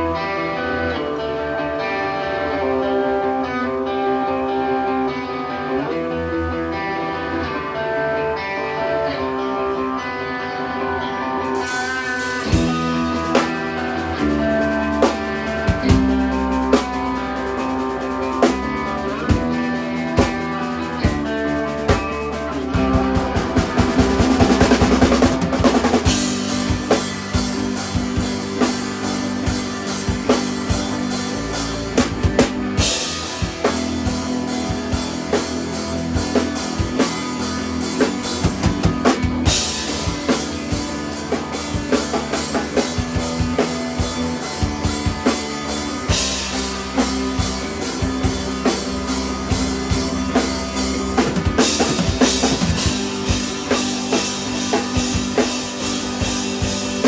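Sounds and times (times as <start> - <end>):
rock band playing live: 0.0 - 57.0
sustained electric guitar: 0.0 - 57.0
drum kit: 11.4 - 57.0.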